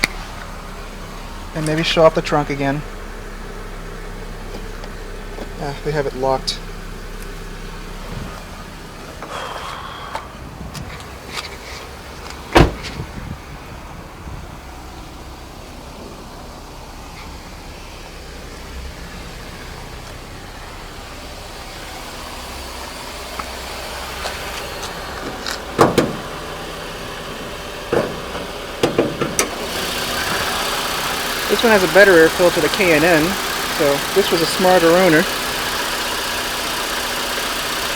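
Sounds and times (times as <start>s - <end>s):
low steady rumble: 0.0s - 37.9s
car hood clunks: 8.0s - 13.3s, 24.2s - 30.9s
loud thump: 12.5s - 13.2s, 25.8s - 26.3s.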